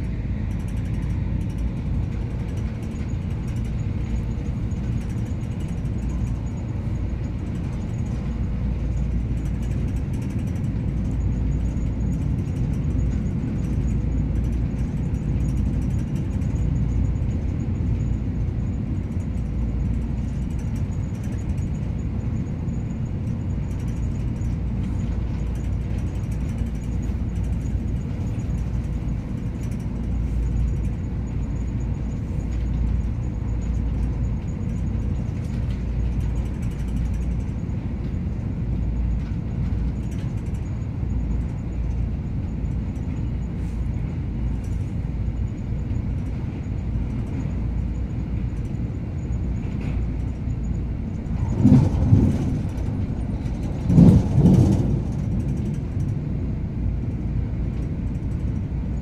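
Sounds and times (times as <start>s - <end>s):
train rumbling at speed: 0.0s - 59.0s.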